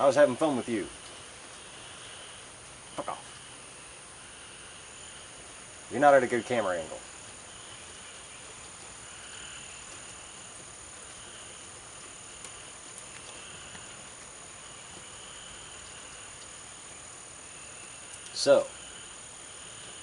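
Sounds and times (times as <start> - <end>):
high-pitched insect drone: 0.0 - 20.0
frog calls: 7.4 - 16.6.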